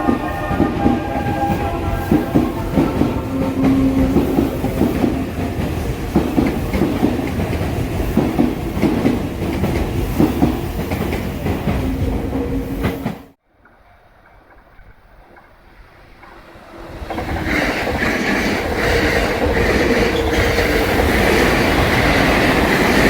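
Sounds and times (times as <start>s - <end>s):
train motor hum: 0.0s - 13.3s.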